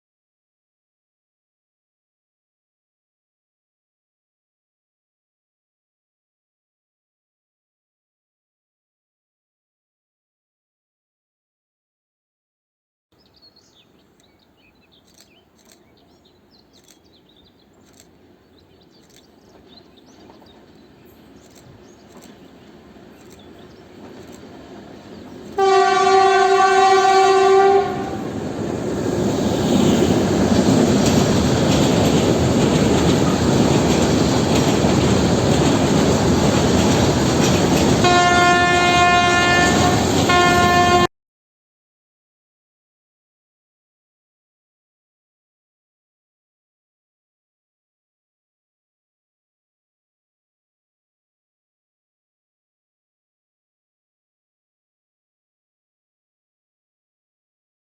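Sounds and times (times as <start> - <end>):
train approaching: 15.0 - 41.1
train horn blast: 25.6 - 28.4, 38.0 - 41.1
wheel and rail clatter: 28.5 - 38.0.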